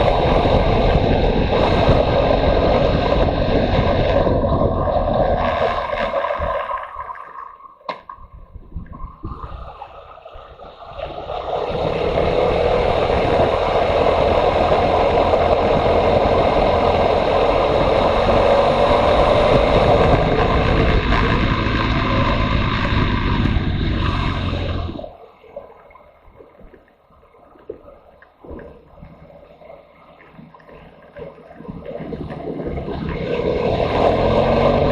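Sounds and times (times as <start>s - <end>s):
wind rushing over microphone: 0.0s - 7.1s, 8.2s - 25.1s, 31.7s - 34.9s
motorcycle engine: 11.1s - 25.1s, 32.7s - 34.9s.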